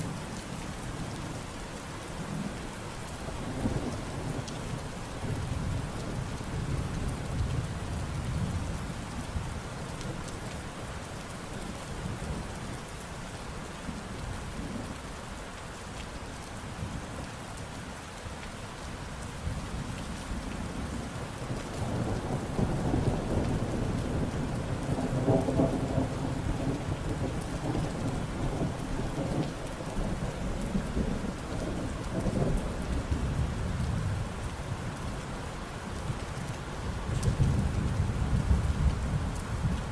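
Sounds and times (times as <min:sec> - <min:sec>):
steady rain falling: 0:00.0 - 0:39.9
low thunder rumble: 0:21.8 - 0:34.6, 0:36.9 - 0:39.9.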